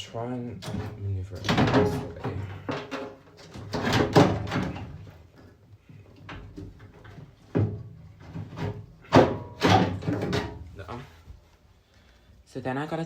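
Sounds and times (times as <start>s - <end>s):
clunks and knocks of motor on metal: 0.6s - 5.2s, 6.2s - 10.7s.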